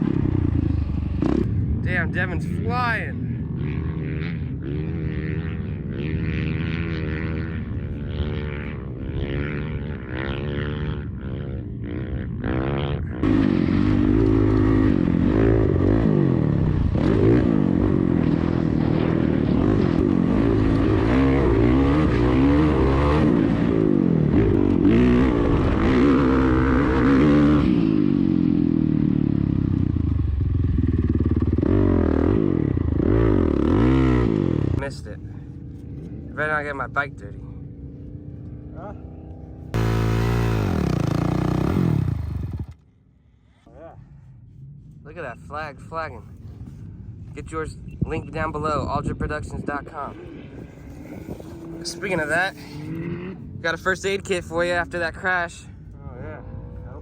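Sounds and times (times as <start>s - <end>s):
dirt bike engine revving: 0.0s - 35.0s, 37.8s - 42.9s, 49.8s - 54.8s.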